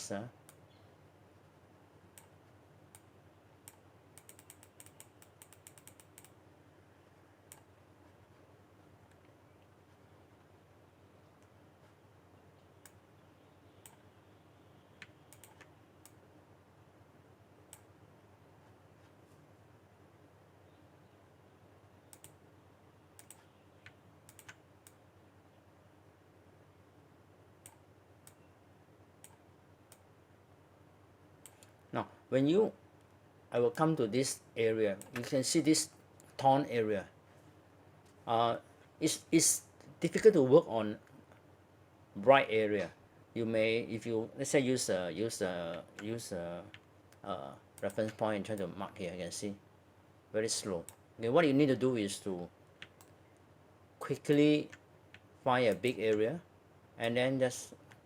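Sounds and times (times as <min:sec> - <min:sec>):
computer mouse and keyboard clicks: 0:02.2 - 0:06.4, 0:15.0 - 0:16.2, 0:23.2 - 0:25.0.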